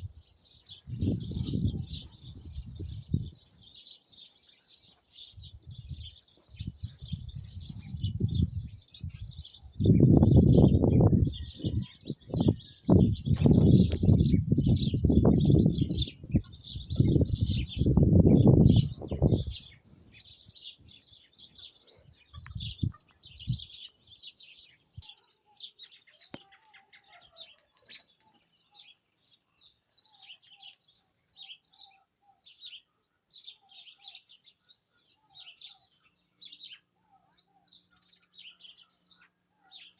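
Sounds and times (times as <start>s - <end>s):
wind buffeting microphone: 0.0s - 3.9s, 5.2s - 21.0s, 22.1s - 23.8s
small birds chirping: 0.0s - 39.9s.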